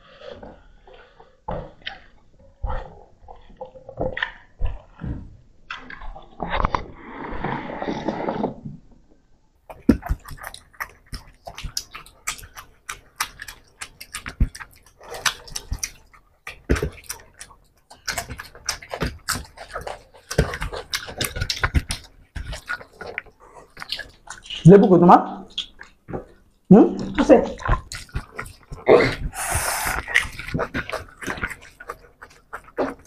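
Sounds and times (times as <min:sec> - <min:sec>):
wet chewing and lip-smacking: 0:00.4 - 0:06.7, 0:09.6 - 0:33.0
fingers squishing rice: 0:09.7 - 0:24.7, 0:27.1 - 0:33.0.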